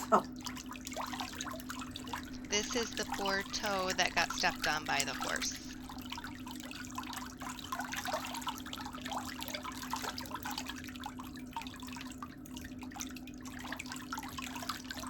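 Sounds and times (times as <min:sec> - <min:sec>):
water trickling and dripping: 0:00.4 - 0:15.0
steady low hum: 0:02.2 - 0:06.3.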